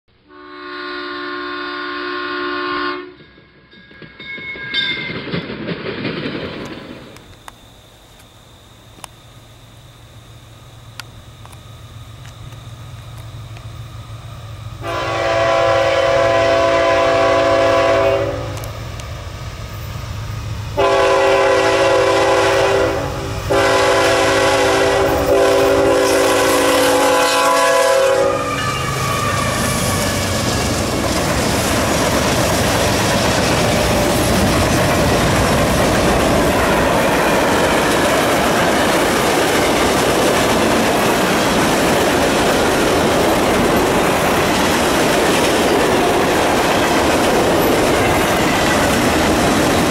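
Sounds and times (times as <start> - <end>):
locomotive air horn blasts: 0.2 - 3.2, 14.8 - 18.7, 20.8 - 30.6
freight train wheels rumbling: 0.6 - 49.9.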